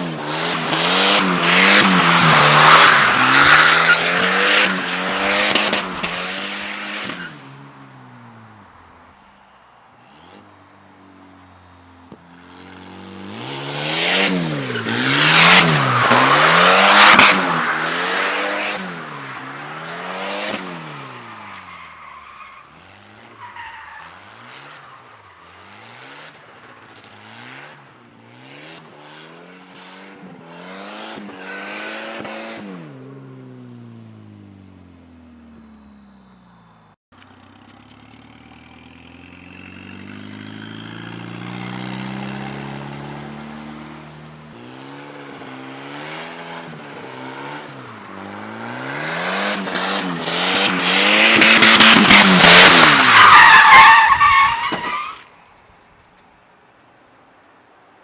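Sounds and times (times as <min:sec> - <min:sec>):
tyres squealing: 0:00.0 - 0:06.1, 0:14.2 - 0:19.8, 0:48.8 - 0:55.3
car engine revving: 0:00.0 - 0:09.3, 0:10.0 - 0:55.1.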